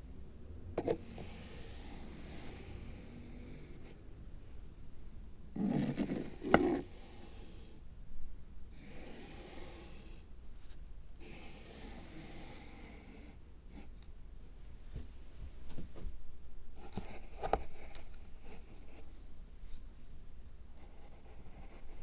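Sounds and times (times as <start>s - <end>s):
rubbing and scraping small materials: 5.6s - 6.9s.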